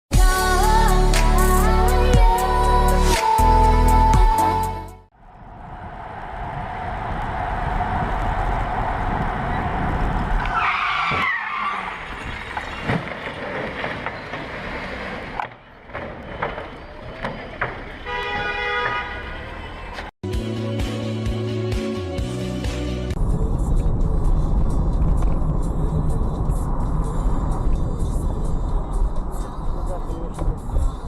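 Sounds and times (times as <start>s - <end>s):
car and road noise: 5.1s - 20.2s, 22.3s - 31.0s
tyre squeal: 10.5s - 15.3s, 16.1s - 19.0s.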